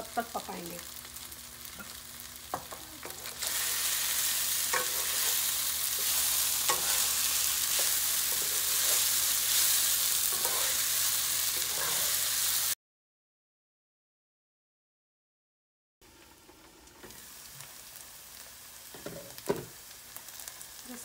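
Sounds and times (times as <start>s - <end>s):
food sizzling in oil: 0.0s - 12.8s, 16.0s - 21.0s
spatula scraping and knocking pan: 4.6s - 10.9s, 11.5s - 12.2s.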